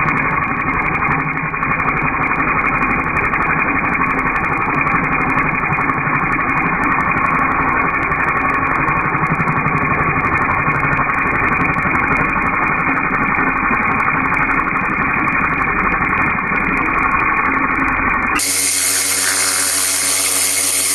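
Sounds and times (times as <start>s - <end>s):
machine with steady tones: 12.4s - 20.9s
muffled pressure washer running: 18.4s - 20.9s.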